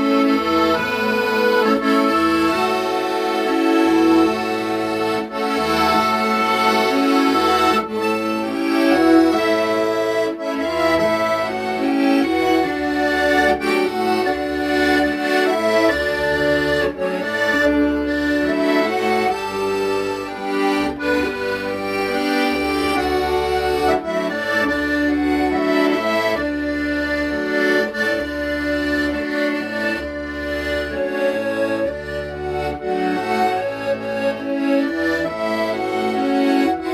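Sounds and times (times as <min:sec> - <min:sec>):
accordion playing slow melody: 0:00.0 - 0:36.9.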